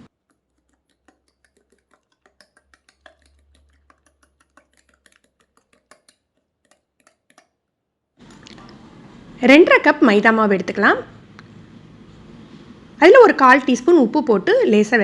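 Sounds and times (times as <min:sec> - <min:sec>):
utensil knocking against bowl: 0:00.3 - 0:07.5.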